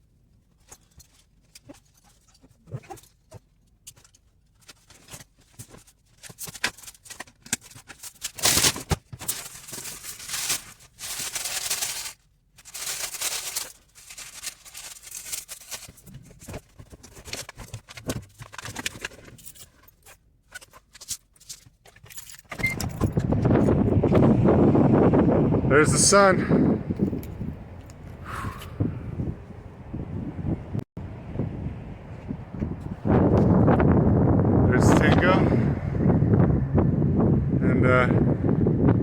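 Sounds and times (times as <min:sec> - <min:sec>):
fabric or bags rustling: 0:04.5 - 0:22.5.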